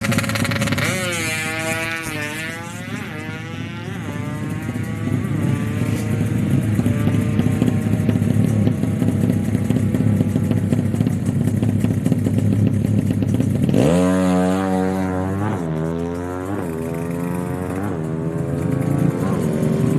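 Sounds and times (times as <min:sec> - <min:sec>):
motorcycle engines revving: 0:00.0 - 0:19.9.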